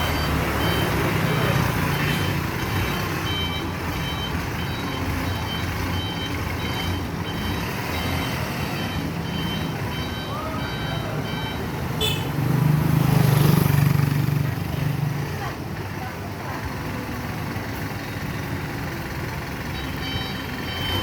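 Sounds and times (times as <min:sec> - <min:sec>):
truck reverse alarm beeping: 0:00.0 - 0:12.2, 0:19.4 - 0:21.0
diesel engine running: 0:00.0 - 0:21.0.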